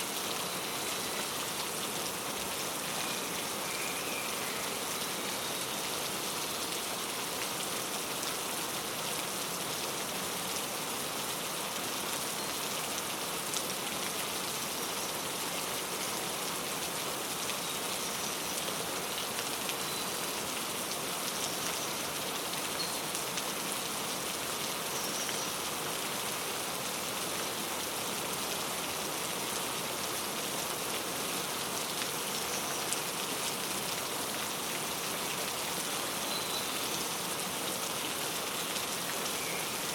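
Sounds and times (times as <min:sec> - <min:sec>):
steady rain pattering: 0:00.0 - 0:39.9
faint bird chirps: 0:03.0 - 0:05.8, 0:36.2 - 0:37.1, 0:39.3 - 0:39.9.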